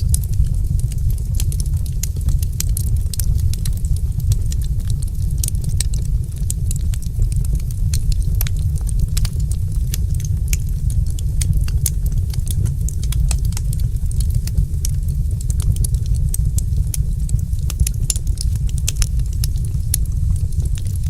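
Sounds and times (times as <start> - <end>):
low rumble of fire: 0.0 - 21.0
wood fire crackling: 0.0 - 21.0.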